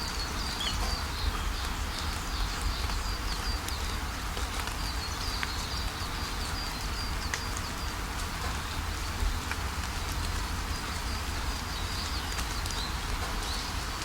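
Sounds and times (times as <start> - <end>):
bird chirping: 0.0 - 1.7
steady rain: 0.0 - 14.0.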